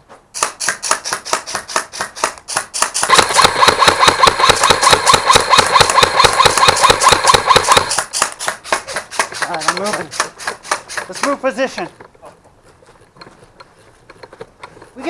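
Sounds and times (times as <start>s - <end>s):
airsoft gun firing full auto: 0.4s - 11.4s.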